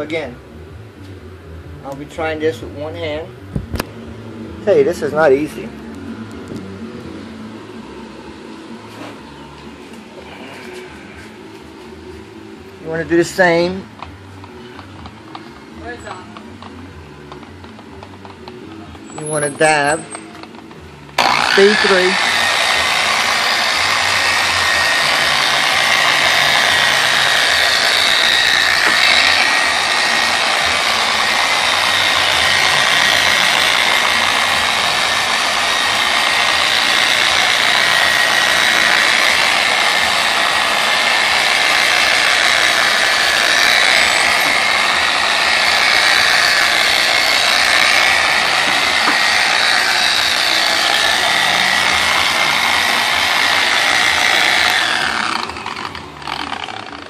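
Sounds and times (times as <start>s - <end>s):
polisher motor whine: 21.2s - 57.0s.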